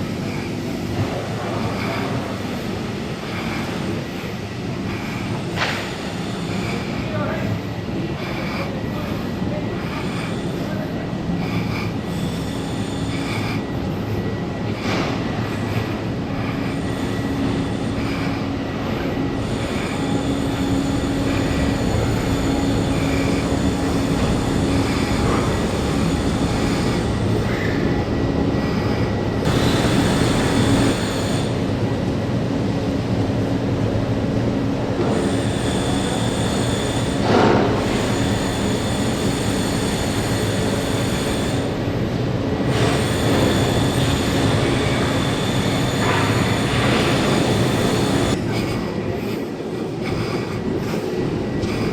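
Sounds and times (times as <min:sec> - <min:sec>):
train rumbling: 0:00.0 - 0:51.9.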